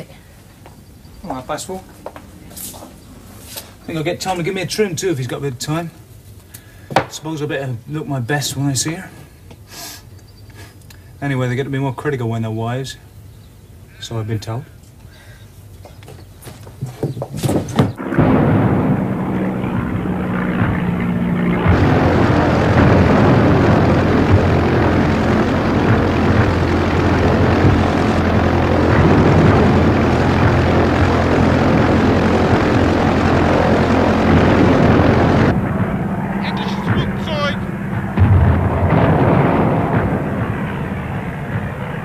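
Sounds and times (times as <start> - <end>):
knocks: 16.8 - 18.0
propeller aeroplane engine: 17.7 - 42.0.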